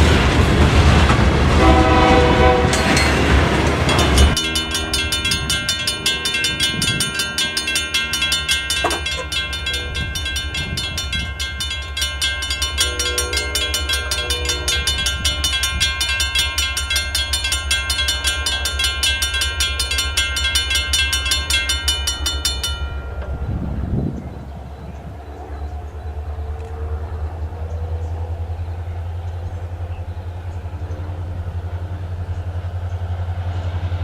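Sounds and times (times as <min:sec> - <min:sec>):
train rumbling: 0:00.0 - 0:34.0
repeating metallic ringing: 0:02.7 - 0:24.6.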